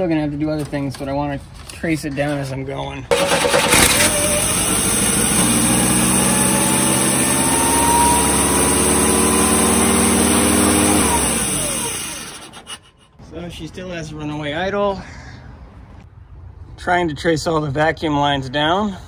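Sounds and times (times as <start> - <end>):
car engine high idle: 3.1 - 7.3, 9.5 - 12.7.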